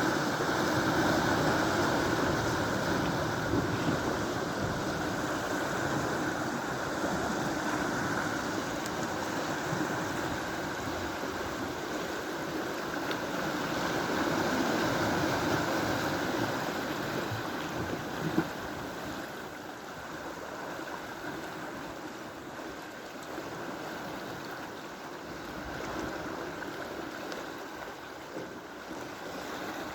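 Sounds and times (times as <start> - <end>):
sea waves rushing along shore: 0.0 - 29.9.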